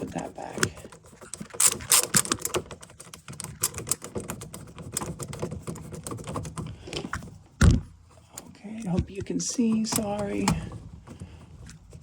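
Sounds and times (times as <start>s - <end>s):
plastic cover clicking and rattling: 0.5s - 7.3s.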